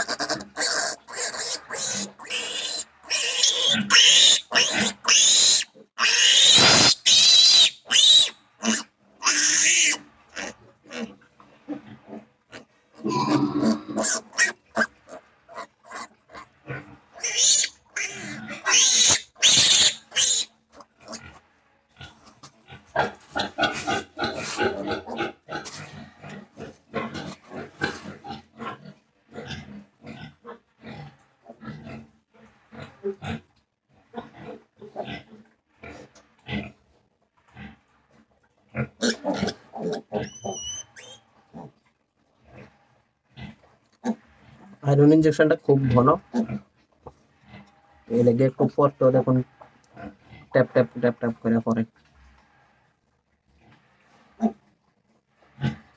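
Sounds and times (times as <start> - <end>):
piglet squealing: 0.0 - 11.1, 13.0 - 15.0, 17.2 - 20.5, 39.0 - 41.2
piglet grunting: 0.0 - 11.8, 12.5 - 21.3, 38.8 - 41.8.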